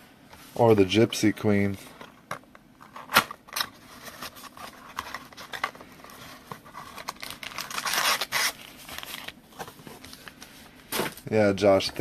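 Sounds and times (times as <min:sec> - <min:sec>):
packaging crinkling: 0:02.8 - 0:11.3
packaging tearing: 0:06.4 - 0:09.4.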